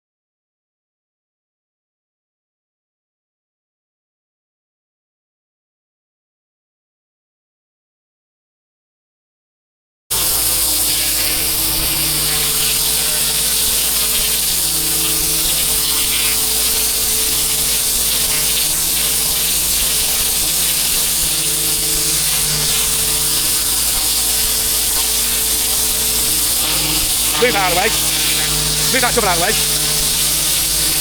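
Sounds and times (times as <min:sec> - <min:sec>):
pressure washer droning: 0:10.1 - 0:31.0
water jet spraying: 0:10.1 - 0:31.0.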